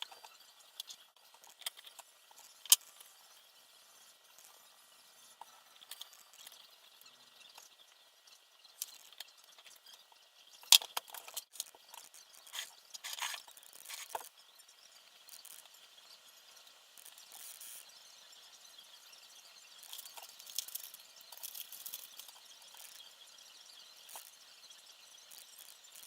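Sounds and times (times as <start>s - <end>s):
small parts clicking and tapping: 0.0s - 3.5s, 5.3s - 8.0s, 8.7s - 14.4s, 17.0s - 17.8s, 19.8s - 23.2s
rustling scrapes: 12.5s - 14.3s.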